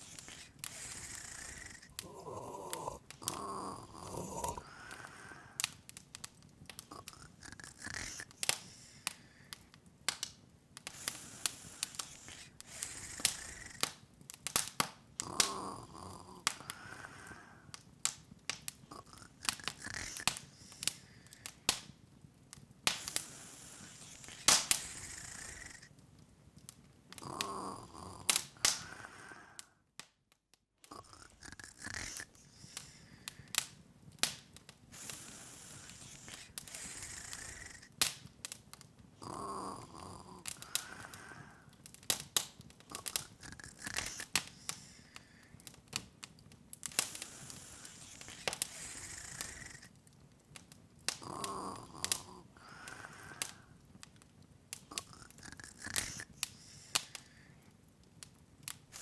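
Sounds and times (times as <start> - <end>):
soft breathy snore-like sound: 0.0 - 5.9, 6.7 - 9.7, 10.8 - 17.8, 18.8 - 21.9, 22.9 - 26.0, 27.1 - 29.8, 30.9 - 33.8, 34.9 - 38.3, 39.2 - 41.8, 42.8 - 45.8, 46.9 - 50.0, 51.1 - 53.8, 54.8 - 57.7
soft hiss: 0.0 - 29.8, 30.9 - 59.0
wood fire crackling: 0.0 - 59.0.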